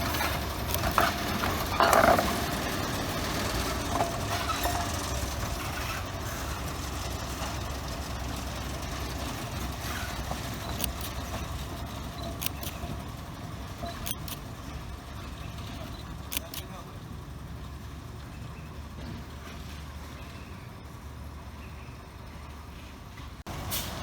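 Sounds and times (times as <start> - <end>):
train rumbling: 0.0 - 24.0
sharp clicks: 10.6 - 11.4, 12.3 - 12.9, 14.0 - 14.4, 16.2 - 16.8.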